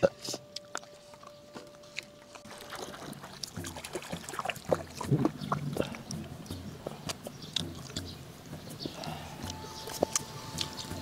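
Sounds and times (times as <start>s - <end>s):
sucking on bones: 0.0s - 11.0s
wet chewing and lip-smacking: 0.0s - 11.0s
small mouth clicks: 4.9s - 10.9s.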